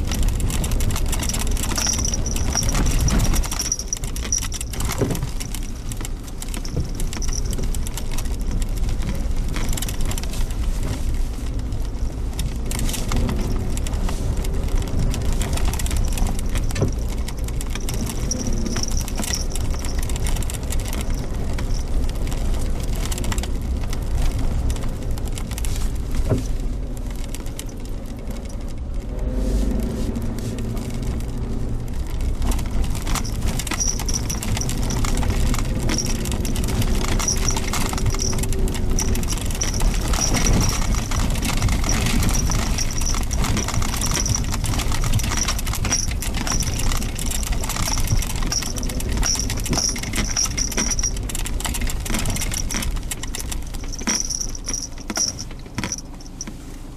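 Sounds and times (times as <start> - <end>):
car engine and road rumble: 0.0 - 56.9
small rattles and clicks: 0.0 - 56.9.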